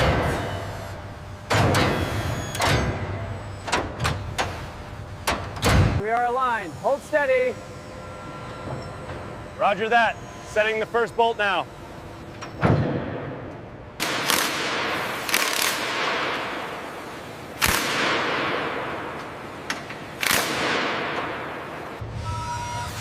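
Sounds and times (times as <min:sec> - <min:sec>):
loud sharp bangs: 0:14.0 - 0:16.8, 0:17.6 - 0:19.2, 0:20.2 - 0:21.7.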